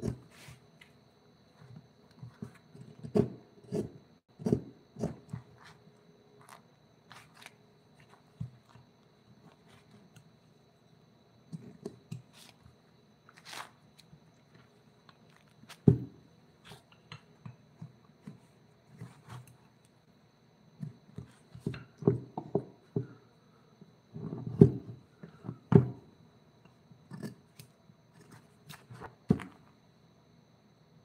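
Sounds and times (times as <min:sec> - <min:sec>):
hand tools knocking on wood: 0:21.6 - 0:23.2.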